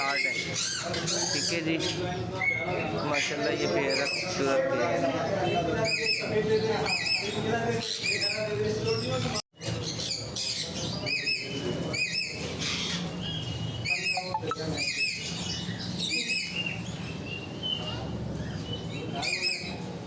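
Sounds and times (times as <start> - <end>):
parakeets squawking: 0.0 - 4.4, 9.8 - 17.0
faint bird chirps: 13.8 - 15.2.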